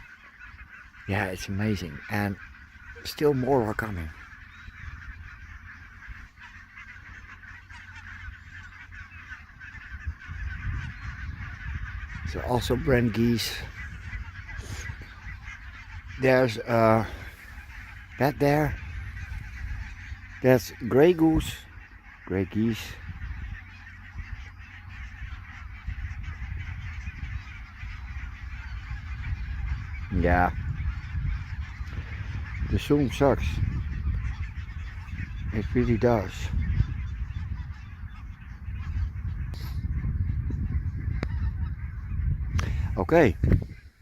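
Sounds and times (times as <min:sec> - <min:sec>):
flock of geese calling: 0:00.0 - 0:44.0.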